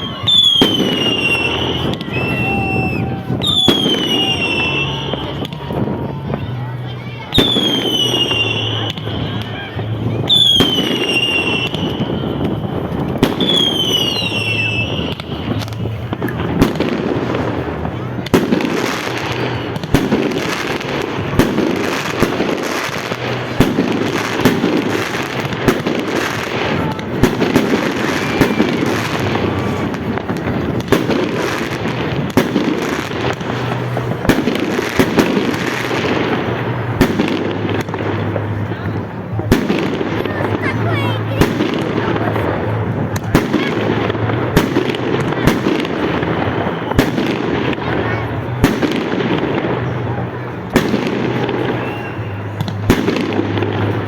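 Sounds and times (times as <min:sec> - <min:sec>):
whistling firework shells: 0:00.0 - 0:06.6, 0:07.3 - 0:31.8, 0:43.2 - 0:47.8, 0:51.3 - 0:54.0
fireworks banging and crackling: 0:00.0 - 0:54.0.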